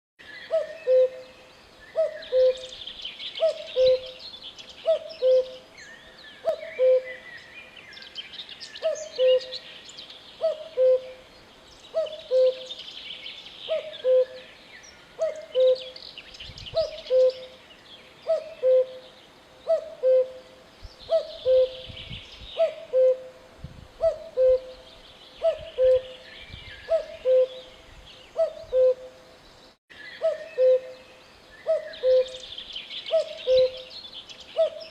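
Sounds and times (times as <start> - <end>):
cuckoo calling: 0.4 - 4.2, 4.8 - 5.6, 6.4 - 7.2, 8.8 - 9.6, 10.4 - 11.2, 11.9 - 12.8, 13.7 - 14.6, 15.2 - 16.0, 16.7 - 17.6, 18.2 - 22.0, 22.6 - 23.4, 24.0 - 29.2, 30.0 - 34.9.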